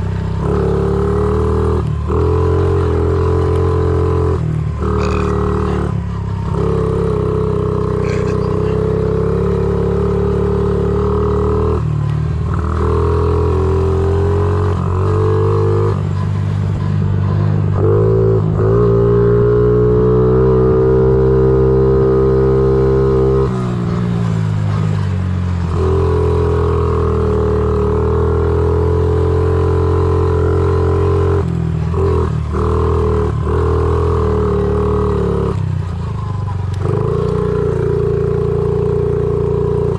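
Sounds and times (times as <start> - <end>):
small motorbike engine running: 4.7 - 11.0.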